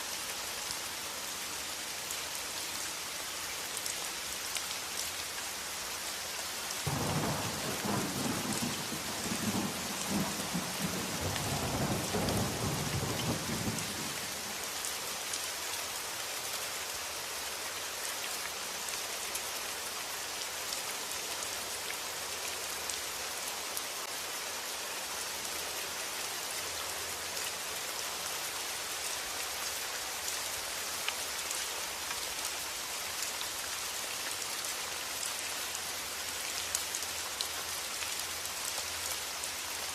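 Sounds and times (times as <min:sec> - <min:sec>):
steady rain: 0:00.0 - 0:39.9
thunder rumbling: 0:06.9 - 0:14.2.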